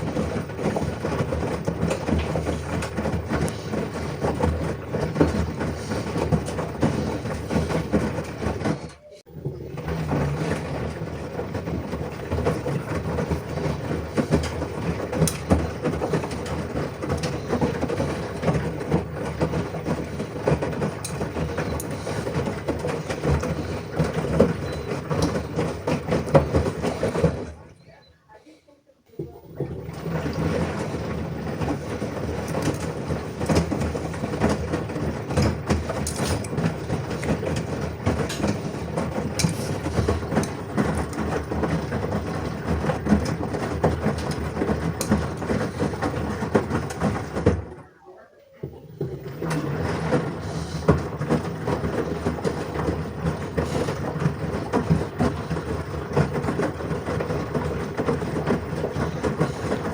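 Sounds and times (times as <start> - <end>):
washing machine drum tumbling: 0.0 - 28.0, 29.1 - 59.9.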